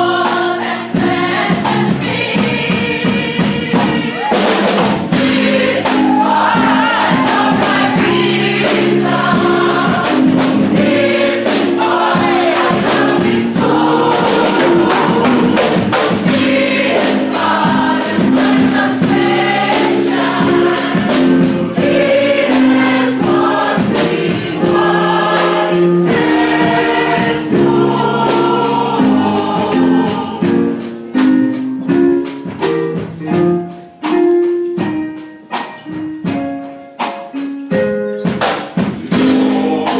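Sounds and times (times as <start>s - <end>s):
choir singing gospel song: 0.0s - 32.3s, 38.9s - 39.9s
instrumental accompaniment: 0.0s - 39.9s
percussion beat: 0.0s - 39.9s
plucked notes: 12.2s - 19.4s.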